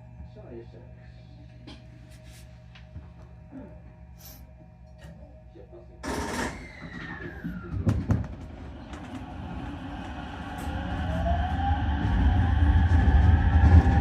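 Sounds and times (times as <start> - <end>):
electric train motor whine: 6.0 - 14.0
train wheels rumbling: 7.3 - 14.0.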